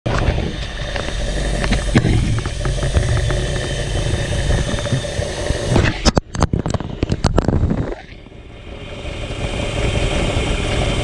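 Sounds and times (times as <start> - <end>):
sharp clicks and knocks: 0.1 - 8.0
vee eight engine idling: 0.2 - 5.8, 8.2 - 11.0.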